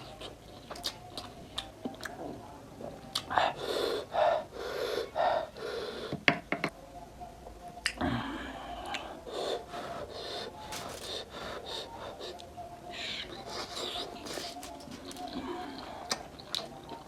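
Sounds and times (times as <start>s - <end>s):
person chewing: 10.7s - 11.2s, 13.5s - 15.4s.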